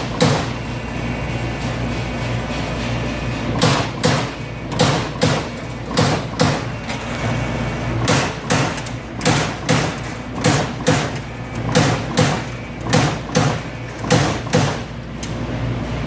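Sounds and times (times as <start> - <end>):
punch press hitting sheet metal: 0.0 - 0.8, 3.2 - 7.0, 8.0 - 15.0.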